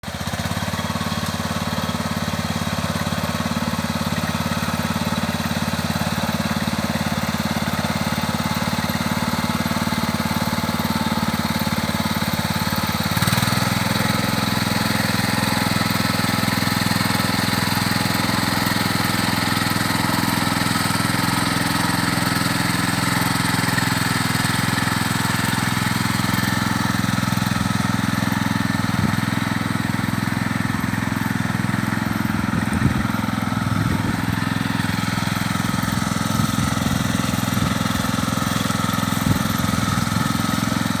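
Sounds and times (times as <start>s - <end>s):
small tractor engine running: 0.0s - 41.0s.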